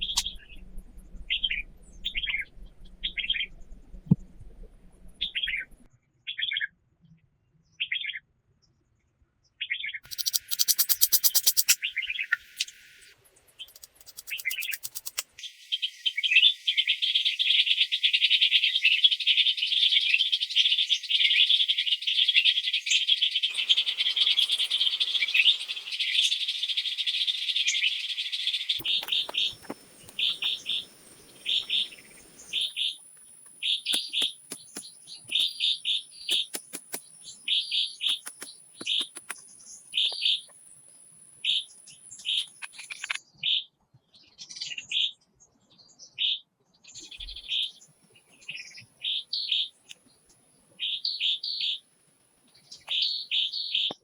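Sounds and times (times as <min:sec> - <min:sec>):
birds chirping: 0:00.0 - 0:00.6, 0:10.0 - 0:43.2, 0:47.0 - 0:51.8, 0:52.5 - 0:54.0
thin high steady tone: 0:10.1 - 0:15.9, 0:23.5 - 0:43.1.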